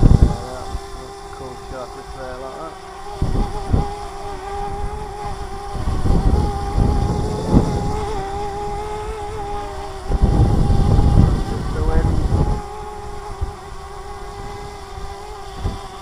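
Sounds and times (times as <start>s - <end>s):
drone propellers whining: 0.0s - 16.0s
wind gusts on microphone: 0.0s - 16.0s.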